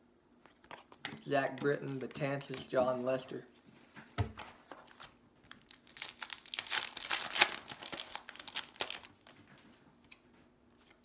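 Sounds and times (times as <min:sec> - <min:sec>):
foil wrapper crinkling and tearing: 0:04.8 - 0:09.5.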